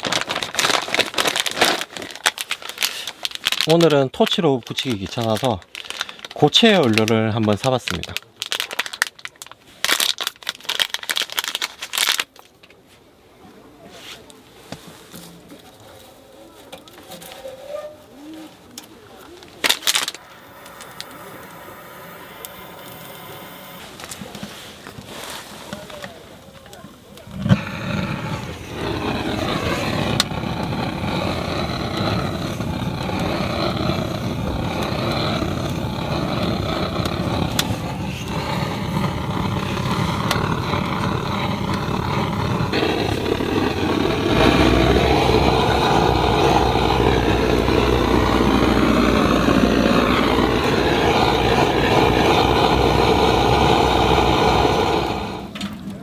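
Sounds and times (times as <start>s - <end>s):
gas torch flame hissing: 19.6s - 25.0s, 27.2s - 55.7s.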